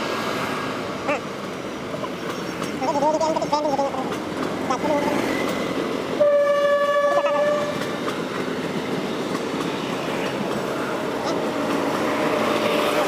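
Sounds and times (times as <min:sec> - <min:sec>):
train rumble and wheel clatter: 0:00.0 - 0:13.0
train horn: 0:06.2 - 0:07.9.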